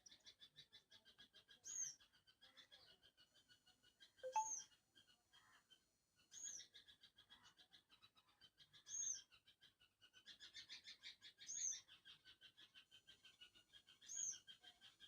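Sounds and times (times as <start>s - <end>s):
high arched chirp: 4.2s - 4.6s.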